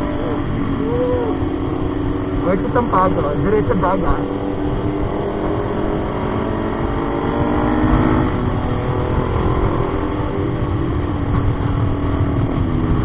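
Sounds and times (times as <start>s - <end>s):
motorcycle engine running: 0.0s - 13.0s
wind rumble on microphone: 0.0s - 13.0s.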